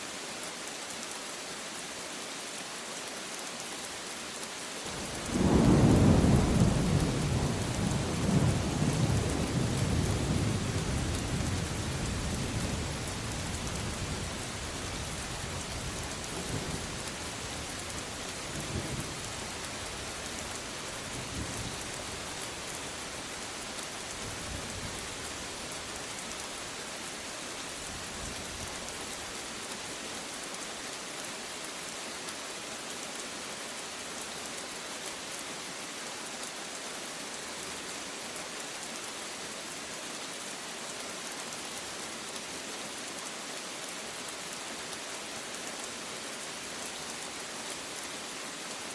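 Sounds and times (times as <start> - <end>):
steady rain: 0.0 - 48.9.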